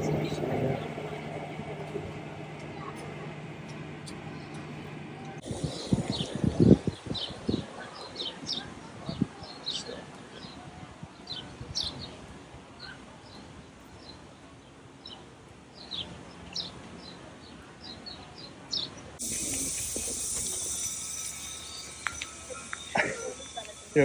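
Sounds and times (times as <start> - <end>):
steady hiss: 5.4 - 7.6, 19.2 - 24.0
small birds chirping: 5.4 - 10.6.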